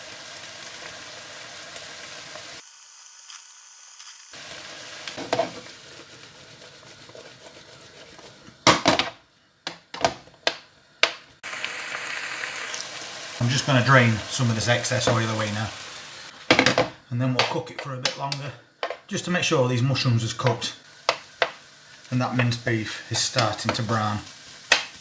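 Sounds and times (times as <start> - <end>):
meat sizzling in a frying pan: 0.0 - 7.4, 10.8 - 16.7, 19.8 - 25.0
stirring in a pan: 4.4 - 8.7.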